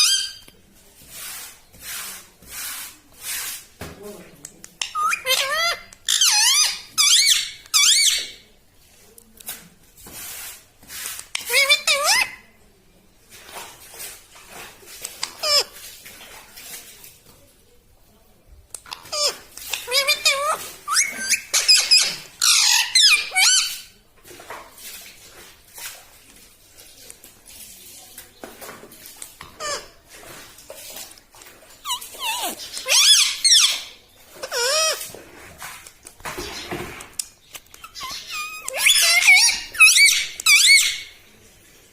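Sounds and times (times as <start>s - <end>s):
parrot squeaky calls: 0.0s - 0.5s, 4.8s - 8.4s, 11.3s - 12.4s, 15.2s - 15.7s, 18.9s - 23.9s, 29.6s - 29.9s, 31.8s - 35.1s, 37.7s - 41.2s
parakeet clicking and chattering: 4.5s - 8.2s, 18.7s - 23.7s, 31.9s - 33.8s, 35.9s - 41.0s.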